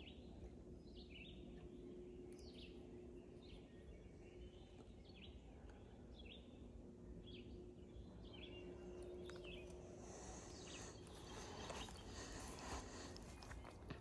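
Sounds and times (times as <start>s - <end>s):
bird chirping: 0.0s - 14.0s
low steady background noise: 0.0s - 14.0s.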